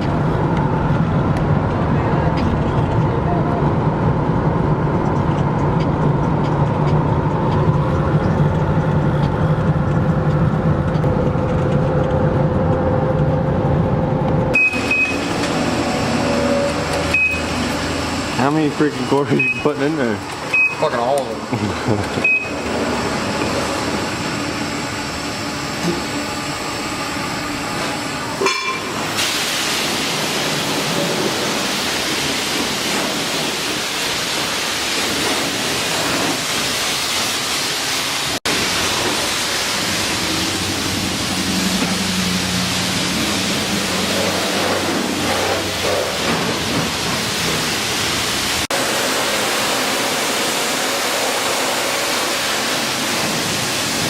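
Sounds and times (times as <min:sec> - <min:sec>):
pressure washer spraying water: 0:14.6 - 0:54.0.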